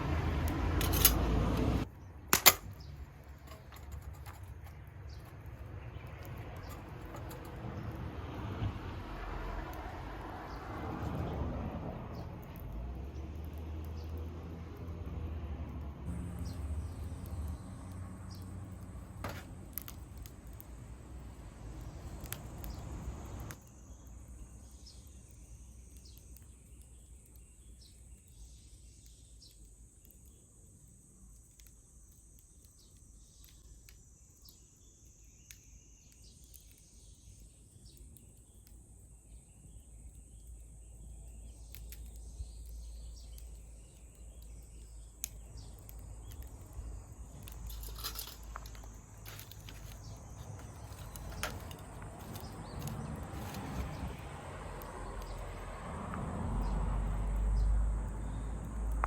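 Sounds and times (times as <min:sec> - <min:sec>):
crickets trilling: 0:40.8 - 0:59.0.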